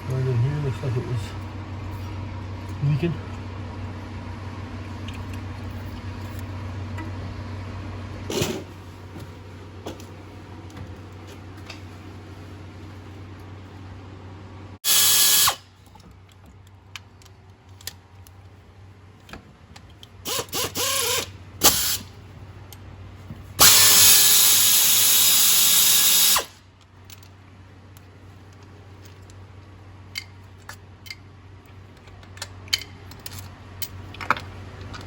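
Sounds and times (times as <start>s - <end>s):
power drill spinning bolts: 14.9s - 15.6s, 20.3s - 22.1s, 23.6s - 27.2s
clinks of parts and tools: 30.1s - 35.0s.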